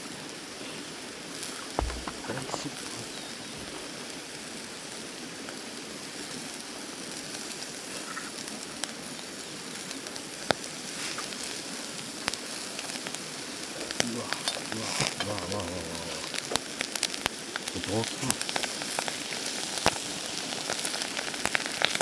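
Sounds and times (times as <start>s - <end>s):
pops and crackles of frying: 1.4s - 4.1s, 5.4s - 22.0s
food sizzling in a pan: 5.1s - 22.0s.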